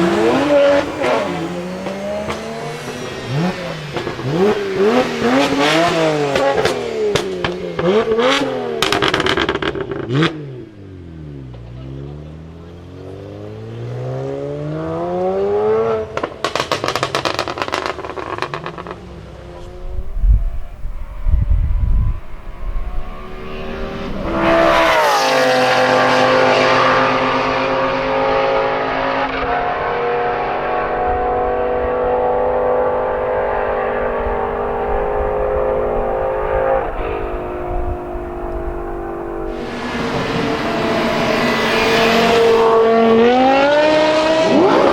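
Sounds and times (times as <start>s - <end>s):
car engine revving: 0.0s - 44.9s
exhaust crackles and pops: 16.2s - 20.7s.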